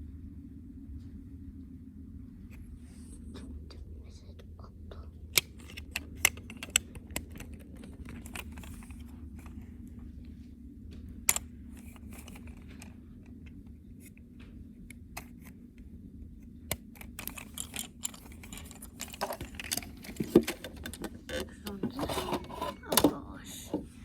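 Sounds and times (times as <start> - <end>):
low steady hum: 0.0 - 24.0
plastic toy trucks clicking: 17.0 - 23.2.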